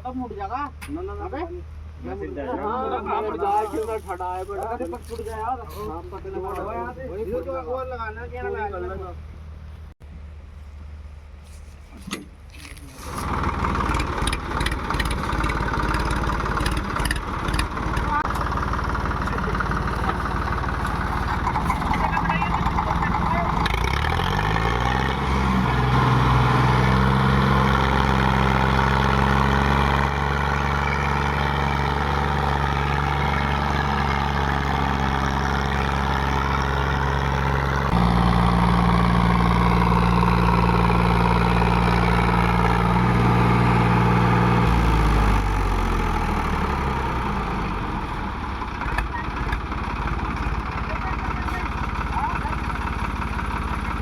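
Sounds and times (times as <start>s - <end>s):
tractor diesel engine revving: 12.8s - 54.0s.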